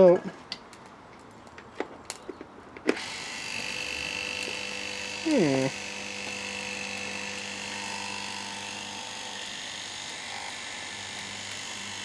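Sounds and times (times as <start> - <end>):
electric motor whining: 2.9 - 12.0.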